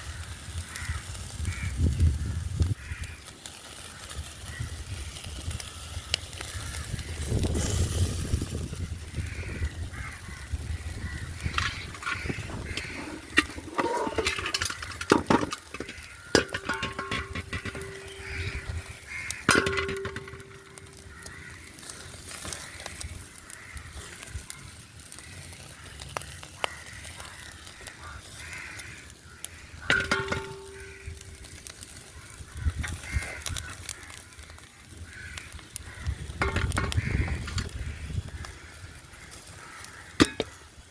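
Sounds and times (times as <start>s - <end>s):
cookware and dishes clinking: 11.5s - 21.3s, 29.9s - 31.3s, 36.4s - 37.7s, 40.2s - 40.6s.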